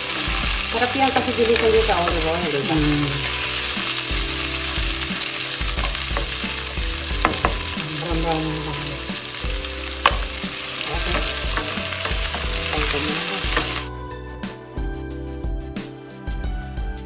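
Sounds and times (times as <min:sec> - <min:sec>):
onions sizzling in oil: 0:00.0 - 0:13.9
spoon stirring and scraping: 0:00.0 - 0:13.9
spoon tapping pan: 0:00.1 - 0:13.9.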